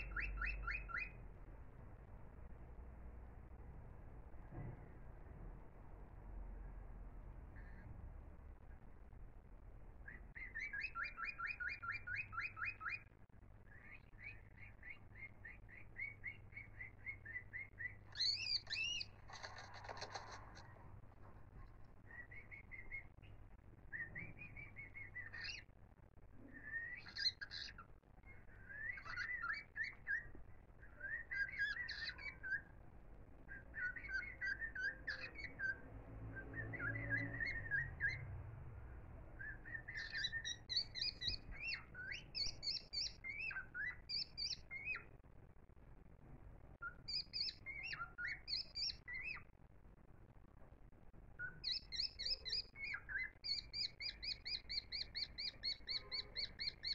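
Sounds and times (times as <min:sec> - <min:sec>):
birds chirping and twittering: 0:00.0 - 0:03.7, 0:06.6 - 0:56.9.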